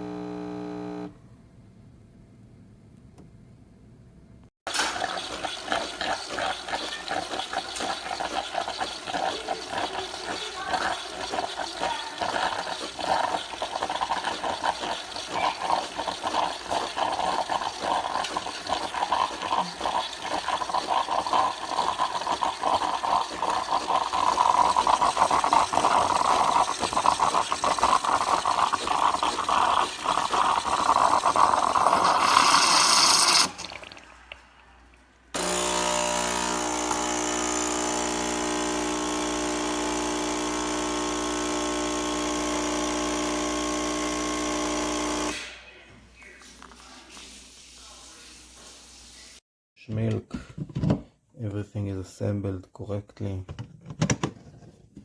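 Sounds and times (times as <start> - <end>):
capsule machine pump running: 4.7 - 34.0
coffee gurgling into cup: 4.7 - 45.5.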